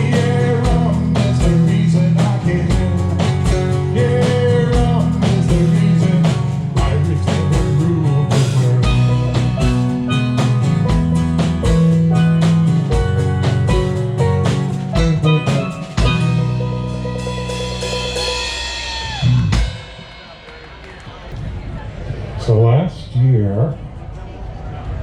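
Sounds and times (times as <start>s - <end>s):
drum kit beat: 0.0s - 21.5s
electric guitar: 0.0s - 22.2s
bass: 0.0s - 25.0s
steel drums: 8.6s - 21.7s.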